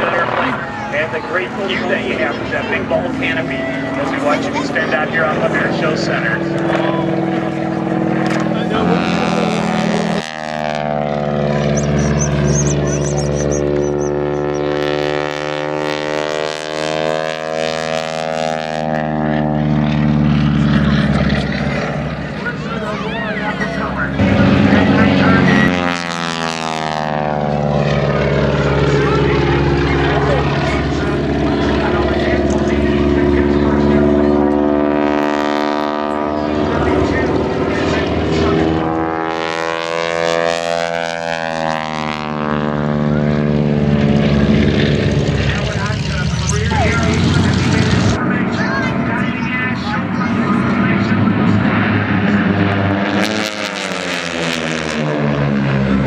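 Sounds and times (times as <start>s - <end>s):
propeller plane engine: 0.0s - 56.0s.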